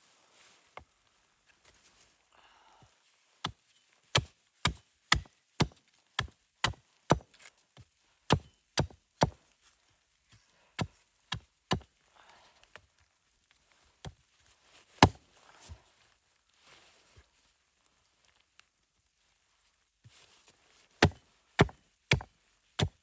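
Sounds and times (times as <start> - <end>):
wood chopping strokes: 3.4 - 7.4, 8.3 - 9.4, 10.8 - 11.9, 15.0 - 15.2, 21.0 - 23.0.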